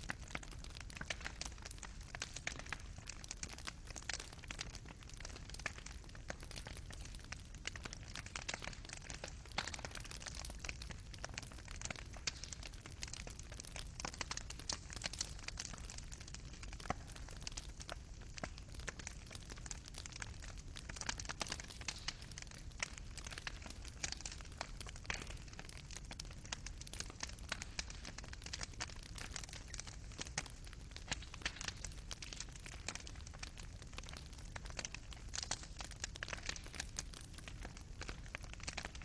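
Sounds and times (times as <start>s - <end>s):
fireplace fire crackling: 0.0s - 39.0s.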